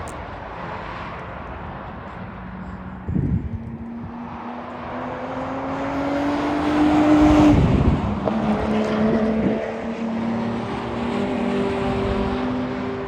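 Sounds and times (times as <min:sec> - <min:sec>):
sports car engine accelerating: 0:03.5 - 0:13.0.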